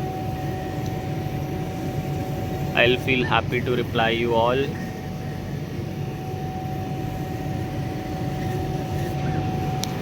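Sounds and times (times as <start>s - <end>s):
laser cutter machinery whirring: 0.0s - 10.0s
mid-pitched hum: 0.0s - 10.0s.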